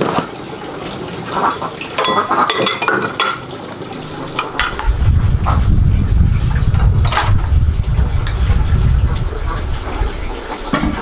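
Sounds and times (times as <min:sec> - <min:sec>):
metal pots clinking: 0:01.9 - 0:05.0, 0:10.6 - 0:11.0.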